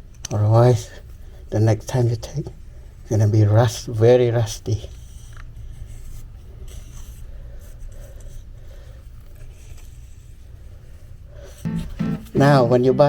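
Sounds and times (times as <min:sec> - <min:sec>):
hand rubbing and scraping: 0:04.7 - 0:12.7.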